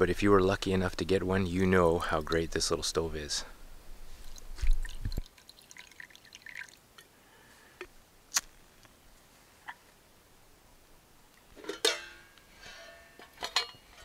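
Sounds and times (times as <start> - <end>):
faint water drips: 4.1 - 7.2
water pouring into a pot: 4.2 - 6.8.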